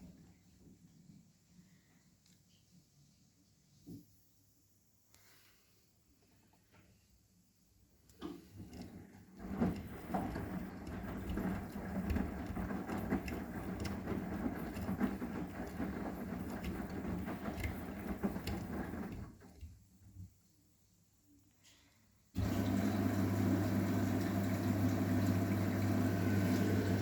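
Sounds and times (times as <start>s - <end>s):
washing machine motor hum: 8.3s - 20.0s, 22.4s - 27.0s
laundry tumbling in drum: 8.5s - 19.7s.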